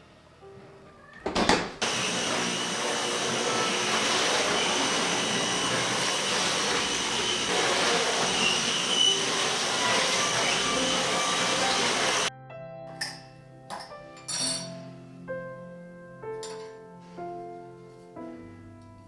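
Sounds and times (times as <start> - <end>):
vacuum cleaner running: 1.8 - 12.3.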